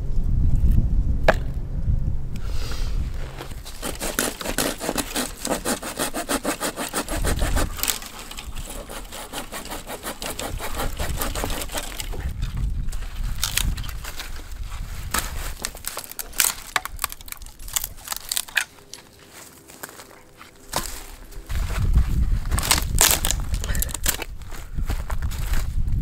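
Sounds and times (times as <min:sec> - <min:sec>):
hand saw cutting wood: 0:03.2 - 0:12.3.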